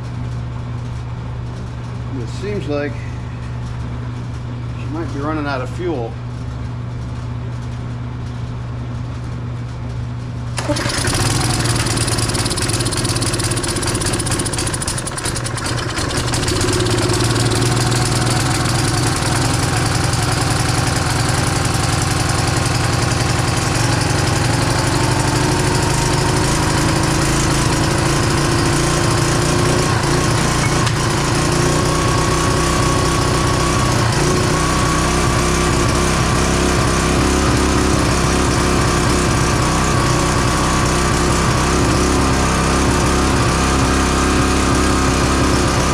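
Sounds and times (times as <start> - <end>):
small engine running: 10.6 - 45.9.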